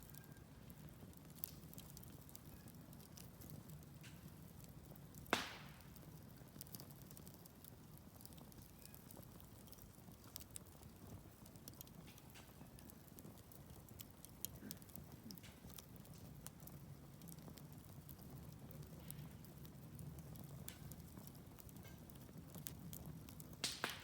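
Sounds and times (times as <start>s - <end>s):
wood fire crackling and popping: 0.0s - 24.0s
loud sharp pop: 5.3s - 5.9s, 23.6s - 24.0s.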